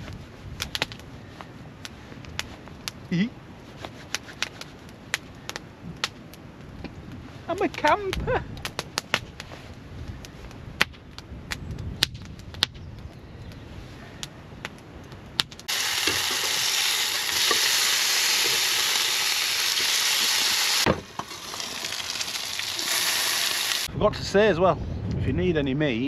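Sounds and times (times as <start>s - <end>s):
wood fire crackling and popping: 0.0s - 23.9s
burgers sizzling in griddle pan: 15.7s - 23.9s.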